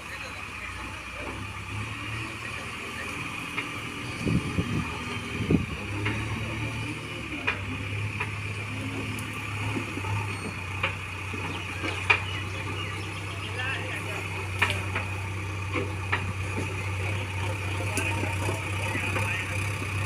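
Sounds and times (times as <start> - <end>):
heavy vehicle engine running: 0.0 - 20.0
sharp knocks and clanks: 9.6 - 12.4, 14.4 - 16.8.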